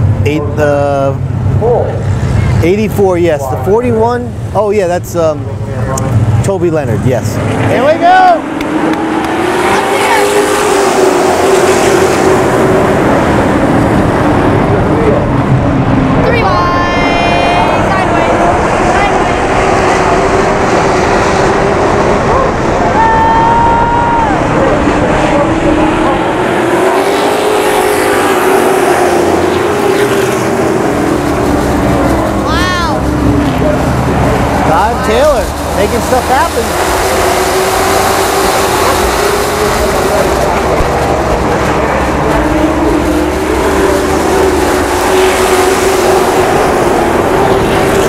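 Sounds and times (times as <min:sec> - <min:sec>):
higher engine note: 0:00.0 - 0:48.0
race engines running: 0:00.0 - 0:48.0.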